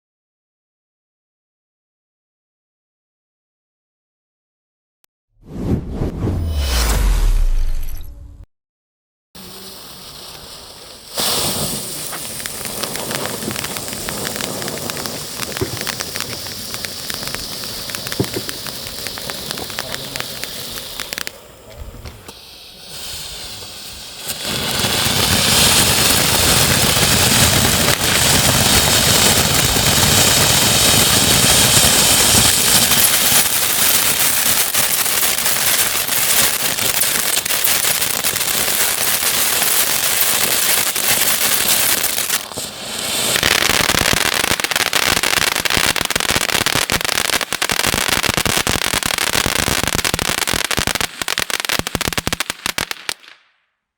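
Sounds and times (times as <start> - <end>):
firework fountain hissing sparks: 9.4 - 53.3
crackling pops: 11.1 - 22.4, 35.7 - 48.7, 51.1 - 53.5.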